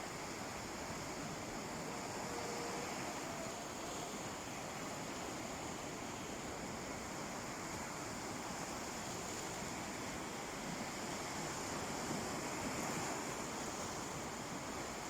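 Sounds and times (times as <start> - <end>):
sea waves washing onto beach: 0.0 - 15.0.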